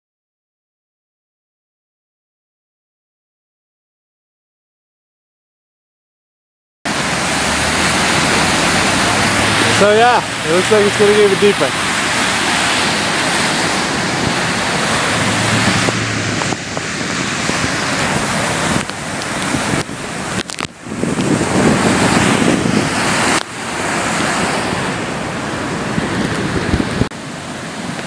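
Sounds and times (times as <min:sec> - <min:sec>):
river roaring in flood: 0:06.9 - 0:28.0
wind buffeting microphone: 0:06.9 - 0:28.0.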